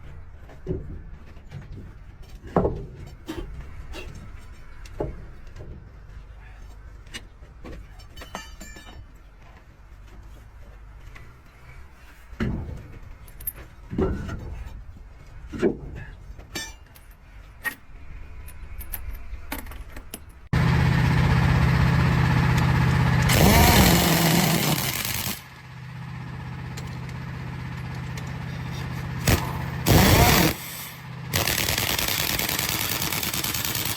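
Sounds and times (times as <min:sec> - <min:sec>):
loud noisy bursts: 0:20.6 - 0:25.5, 0:29.2 - 0:33.9
machine humming: 0:20.6 - 0:25.5, 0:27.2 - 0:33.9.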